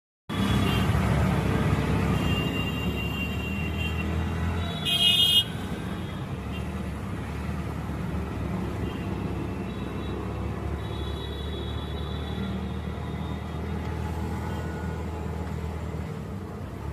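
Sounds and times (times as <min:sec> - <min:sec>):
traffic engines rumbling: 0:00.3 - 0:16.9
vehicle horn: 0:02.2 - 0:05.6.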